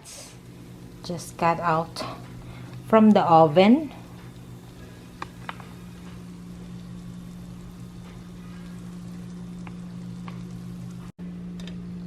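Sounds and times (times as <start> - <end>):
faint sizzling with small pops: 0.0 - 11.2
steady low hum: 0.0 - 12.0.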